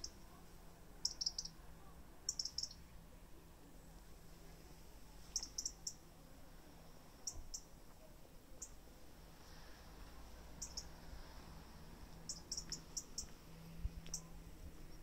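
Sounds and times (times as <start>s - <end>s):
small bird chirping: 1.0s - 1.6s, 2.2s - 2.8s, 5.3s - 6.0s, 7.2s - 7.7s, 8.6s - 8.8s, 10.6s - 11.0s, 12.2s - 13.4s, 14.0s - 15.0s.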